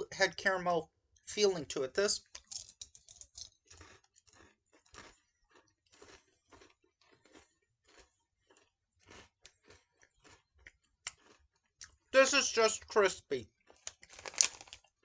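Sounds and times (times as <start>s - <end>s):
faint candy crunching: 2.2s - 15.0s.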